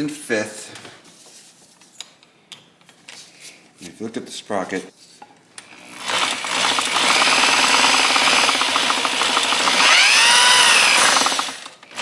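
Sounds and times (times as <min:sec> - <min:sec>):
power drill whine: 0:05.6 - 0:12.0
gears fast ticking clatter: 0:06.4 - 0:11.7.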